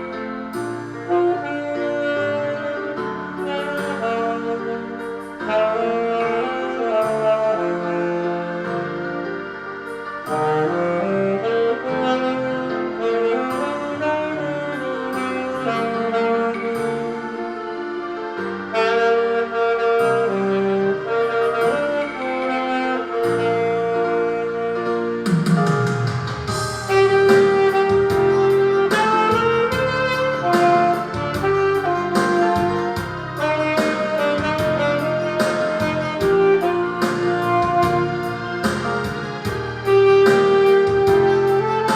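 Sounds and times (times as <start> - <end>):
karaoke backing track: 0.0 - 41.9
saxophone playing ballad melody: 0.0 - 41.9.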